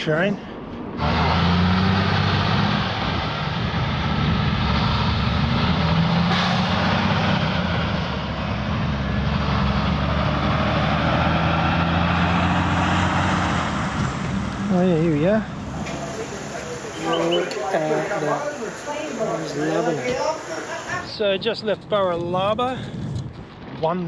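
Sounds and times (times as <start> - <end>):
tyre and wind noise: 0.0 - 14.7, 19.8 - 24.0.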